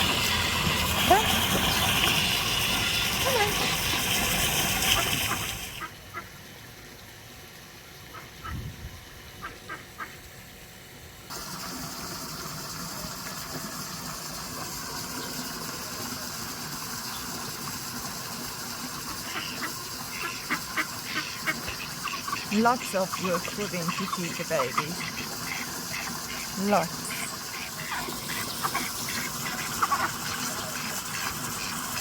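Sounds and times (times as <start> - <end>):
birds chirping: 15.0 - 15.8, 21.1 - 31.8.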